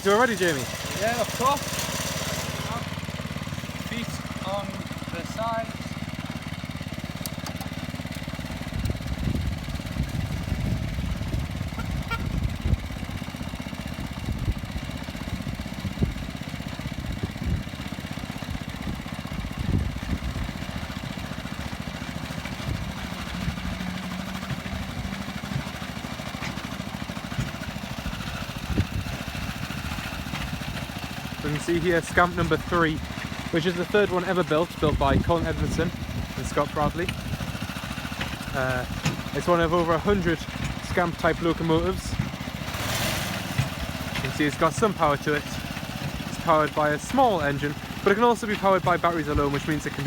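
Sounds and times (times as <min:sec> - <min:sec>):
miniature locomotive engine running: 0:00.0 - 0:50.0.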